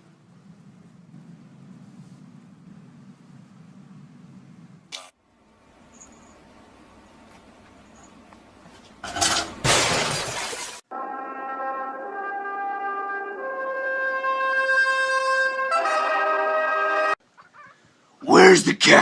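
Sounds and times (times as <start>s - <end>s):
loud smashing crashes: 9.6s - 10.8s
held brass chord music: 10.9s - 17.2s.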